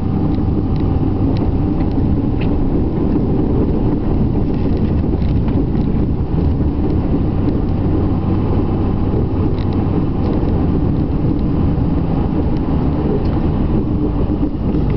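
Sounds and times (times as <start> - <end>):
diesel engine rumbling: 0.0 - 14.9.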